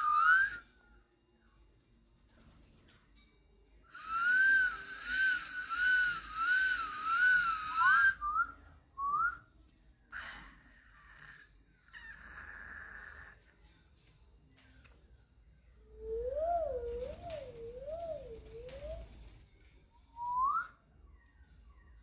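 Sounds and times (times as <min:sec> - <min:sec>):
parakeet whistling: 0:00.0 - 0:00.6, 0:04.0 - 0:08.5, 0:16.0 - 0:19.2, 0:20.2 - 0:20.7.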